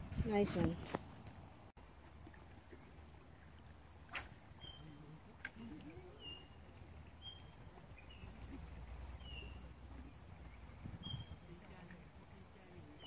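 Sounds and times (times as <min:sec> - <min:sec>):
flowing river water: 0:01.8 - 0:13.0
bird whistling calls: 0:04.6 - 0:04.9, 0:11.0 - 0:11.4.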